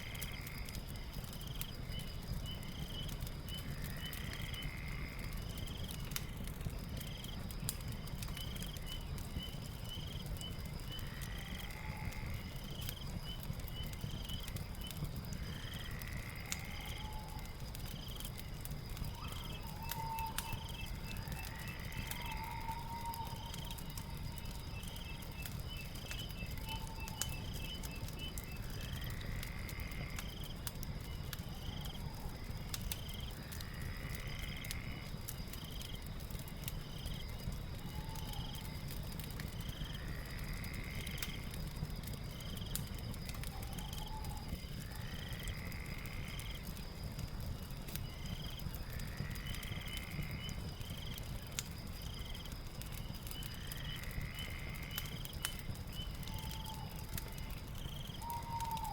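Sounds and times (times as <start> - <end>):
fire crackling: 0.0 - 58.9
swooping animal call: 58.2 - 58.9.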